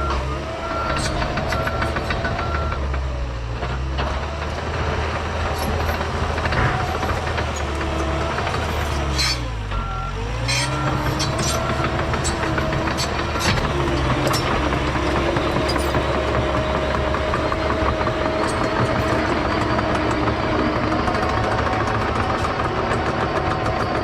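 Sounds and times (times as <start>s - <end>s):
reversing alarm beeping: 0.0s - 2.9s, 9.7s - 24.0s
dozer diesel engine under load: 0.0s - 24.0s.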